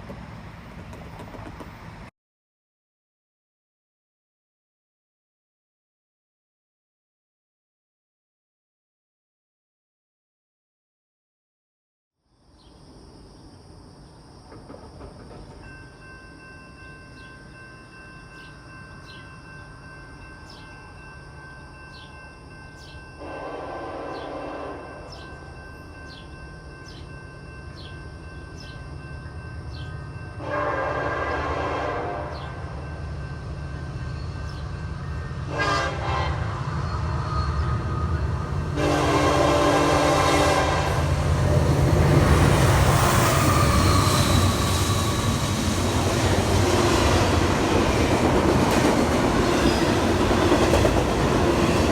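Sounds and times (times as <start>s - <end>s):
train rumble: 0.0s - 2.1s, 14.1s - 51.9s
train horn blasts: 23.2s - 25.2s, 30.4s - 32.7s, 35.4s - 36.7s, 38.7s - 41.4s.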